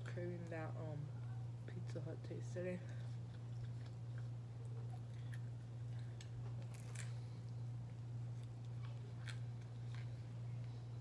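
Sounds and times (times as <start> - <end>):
steady low hum: 0.0 - 11.0
chewing with crisp crunches: 2.8 - 11.0.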